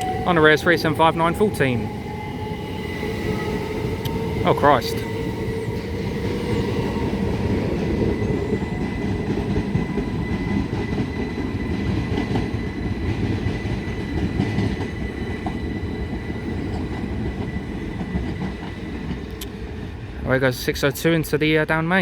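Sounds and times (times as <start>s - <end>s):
high-pitched whine: 0.0s - 11.0s
train wheels rumbling on rail: 0.0s - 22.0s.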